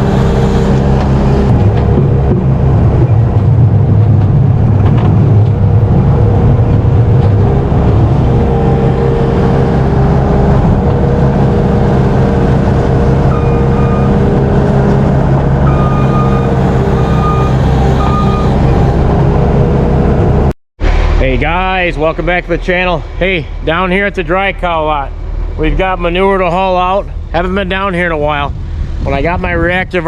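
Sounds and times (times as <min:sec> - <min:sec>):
heavy farm machine engine running: 0:00.0 - 0:29.4
high warning beeps: 0:13.3 - 0:14.2, 0:15.7 - 0:18.6.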